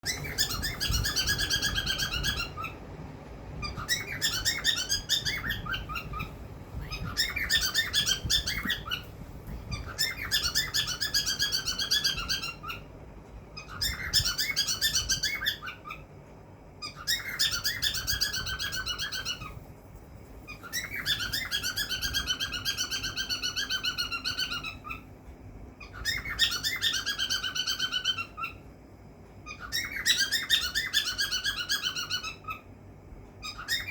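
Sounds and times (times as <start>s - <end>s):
cockatiel chirping and whistling: 0.0s - 2.8s, 3.6s - 12.9s, 13.6s - 16.0s, 16.8s - 19.6s, 20.5s - 25.0s, 25.8s - 28.6s, 29.5s - 32.6s, 33.4s - 33.9s.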